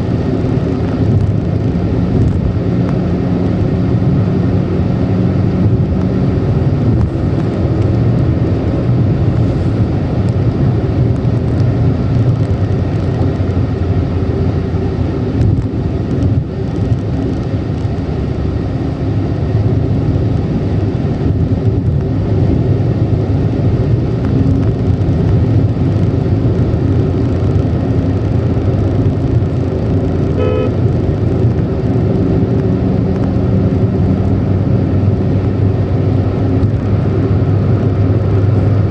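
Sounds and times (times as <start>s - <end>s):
car driving at speed: 0.0s - 38.9s
brief high tone: 30.4s - 30.8s.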